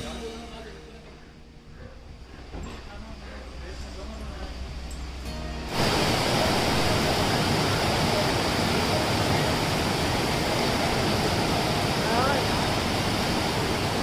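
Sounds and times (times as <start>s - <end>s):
rushing water: 5.7s - 14.0s.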